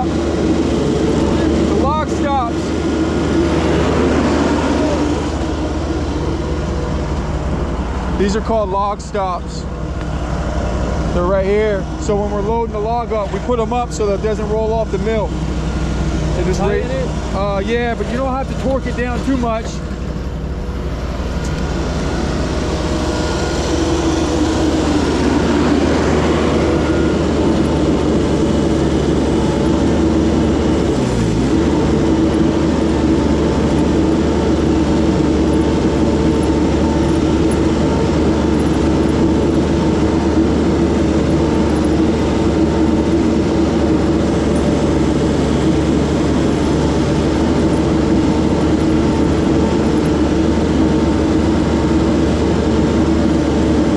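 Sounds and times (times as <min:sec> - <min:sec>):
engine running steadily: 0:00.0 - 0:53.9.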